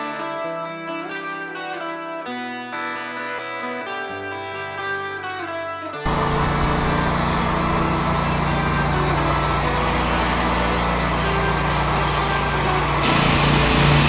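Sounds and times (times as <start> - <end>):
electric guitar chords: 0.0 - 14.0
noisy mechanical sound: 6.1 - 14.0.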